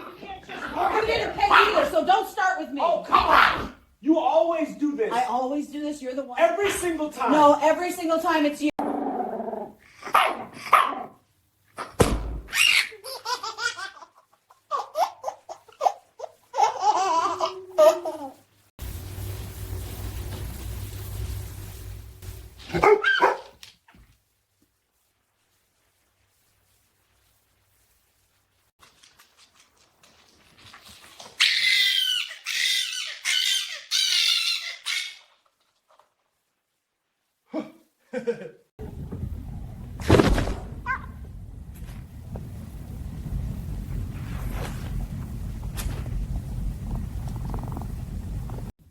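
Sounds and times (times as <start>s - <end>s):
small child laughing: 12.5s - 18.4s
steady rumble: 18.8s - 22.8s, 38.8s - 48.7s.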